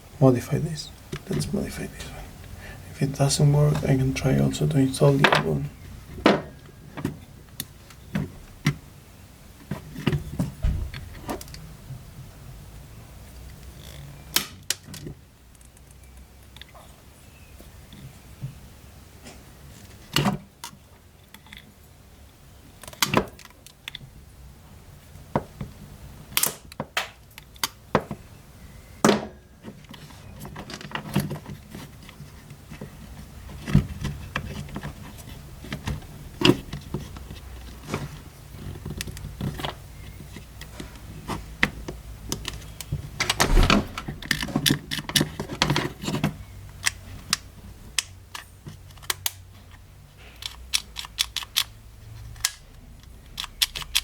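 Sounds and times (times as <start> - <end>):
small parts clicking and knocking: 42.3 - 54.0.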